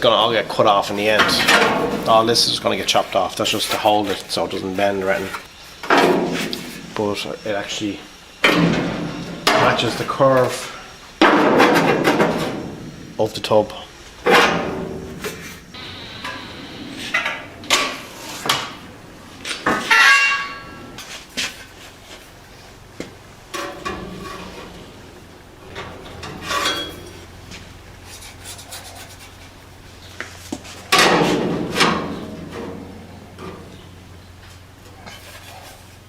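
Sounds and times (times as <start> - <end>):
rough metal clatter: 0.1 - 6.8, 19.4 - 22.2, 23.4 - 34.1
steel panel clanks and knocks: 1.0 - 2.9, 11.2 - 12.9, 14.2 - 15.6, 19.4 - 21.0, 23.5 - 27.7, 30.9 - 34.0.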